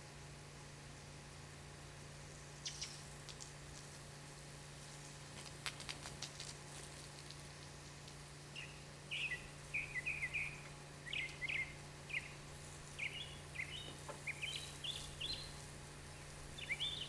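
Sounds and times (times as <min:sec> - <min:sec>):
steady low hum: 0:00.0 - 0:17.0
bird chirping: 0:02.6 - 0:03.0, 0:08.6 - 0:17.0.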